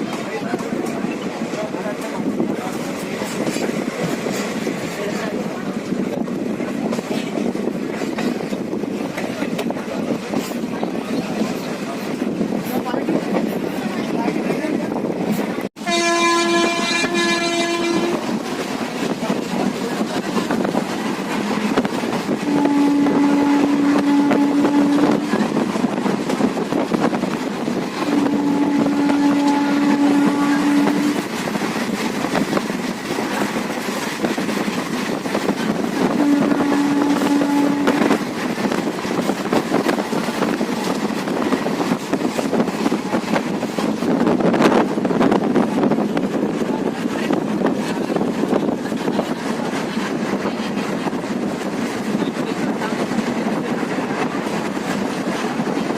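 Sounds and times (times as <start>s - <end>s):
train rushing at speed: 0.0s - 55.9s
locomotive horn blasts: 15.8s - 18.4s, 22.4s - 25.3s, 28.0s - 31.2s, 36.0s - 38.2s.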